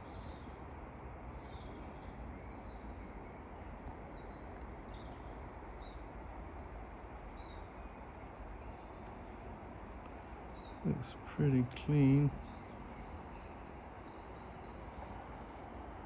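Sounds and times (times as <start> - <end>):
low background noise: 0.0 - 16.0
small birds chirping: 4.1 - 16.0.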